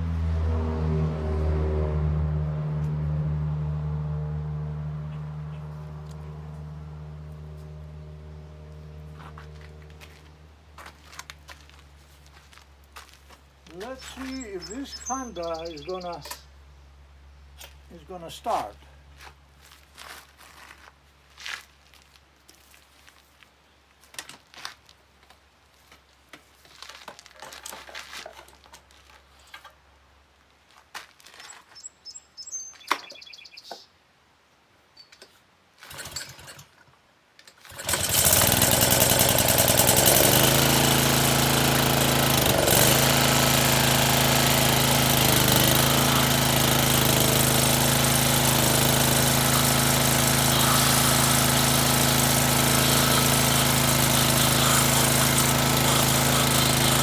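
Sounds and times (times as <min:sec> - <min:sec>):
small gasoline engine running: 0:00.0 - 0:10.5, 0:35.8 - 0:36.8, 0:37.6 - 0:57.0.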